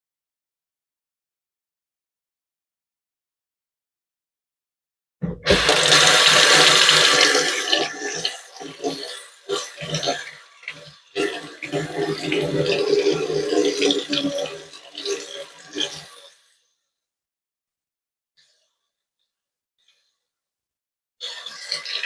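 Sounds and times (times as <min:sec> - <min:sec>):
tap water running into sink: 0:05.2 - 0:16.0.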